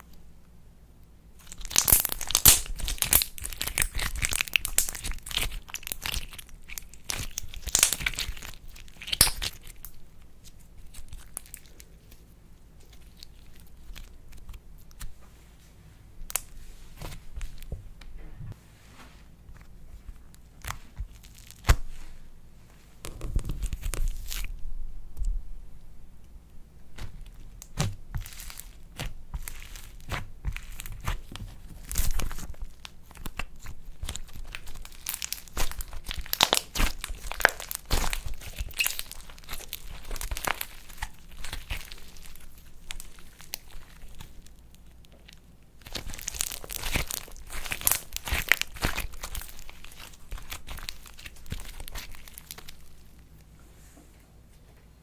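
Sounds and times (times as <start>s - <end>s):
slime crackling and popping: 1.4s - 12.2s, 20.3s - 21.9s, 23.0s - 24.6s, 26.9s - 53.5s.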